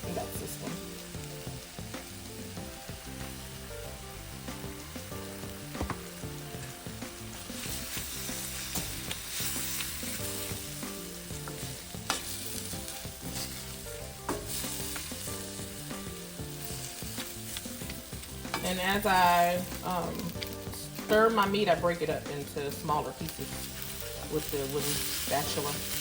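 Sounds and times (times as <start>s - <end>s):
meat sizzling in a pan: 0.0s - 26.0s
wooden spatula scraping a pan: 7.4s - 15.1s.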